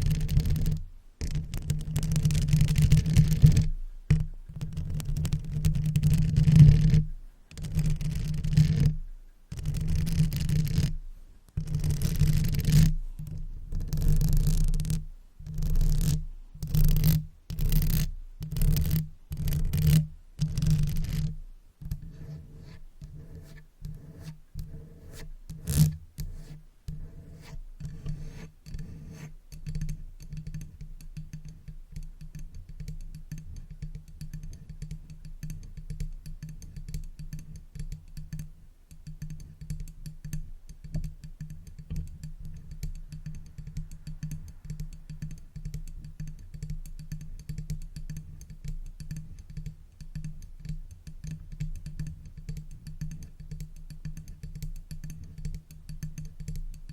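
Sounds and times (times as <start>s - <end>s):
brush tapping on microphone: 11.6s - 29.4s.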